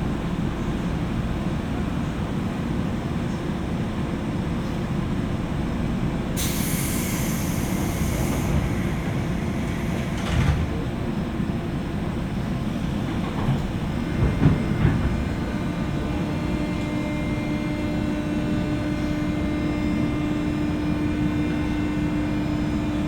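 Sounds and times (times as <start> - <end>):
train low rumble: 0.0 - 23.0
hiss: 6.4 - 10.3.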